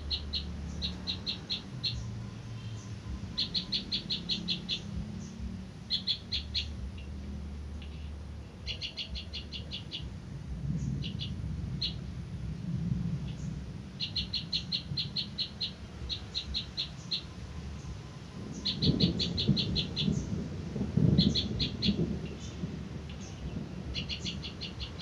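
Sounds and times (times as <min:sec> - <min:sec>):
bird chirping in rapid runs: 0:00.0 - 0:07.2, 0:08.6 - 0:10.1, 0:13.2 - 0:20.4, 0:21.1 - 0:25.0
low rumble: 0:00.0 - 0:25.0.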